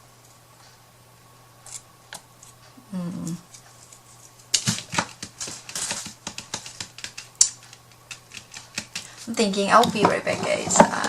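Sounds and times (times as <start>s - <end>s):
person humming: 2.8s - 3.5s
craft pieces clicking on tabletop: 4.6s - 9.1s.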